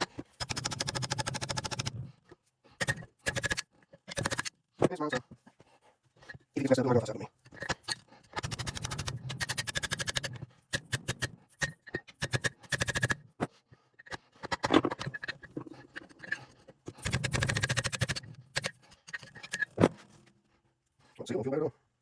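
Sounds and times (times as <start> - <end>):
ratchet wrench clicking: 7.8 - 13.2, 17.0 - 19.7.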